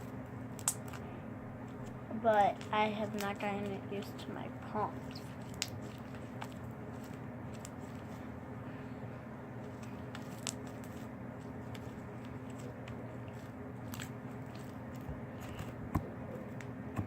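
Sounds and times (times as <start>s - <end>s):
low room hum: 0.0s - 17.0s
slime squishing with sticky clicks: 0.5s - 1.0s, 5.1s - 6.6s.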